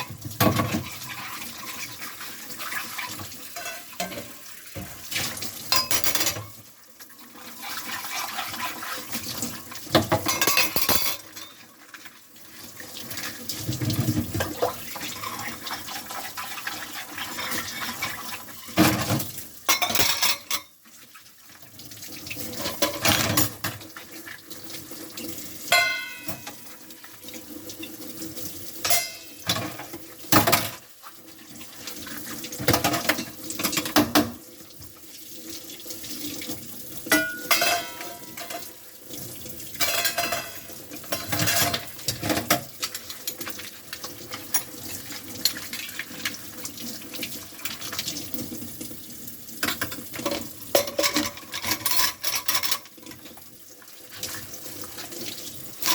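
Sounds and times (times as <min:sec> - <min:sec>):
tap water running: 0:00.0 - 0:55.9
dishes and cutlery clinking: 0:03.5 - 0:06.6, 0:09.9 - 0:11.7, 0:17.3 - 0:20.8, 0:22.6 - 0:23.8, 0:25.7 - 0:26.7, 0:28.8 - 0:30.8, 0:37.1 - 0:38.7, 0:39.8 - 0:42.7, 0:49.6 - 0:53.2.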